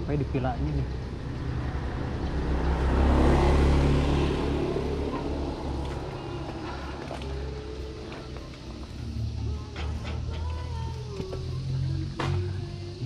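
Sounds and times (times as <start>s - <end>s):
vehicle engine passing by: 0.0s - 10.4s.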